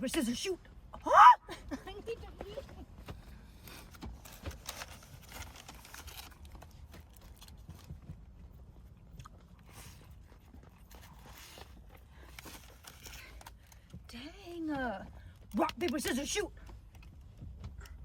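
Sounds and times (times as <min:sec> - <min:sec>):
soft chewing: 0:06.1 - 0:14.0.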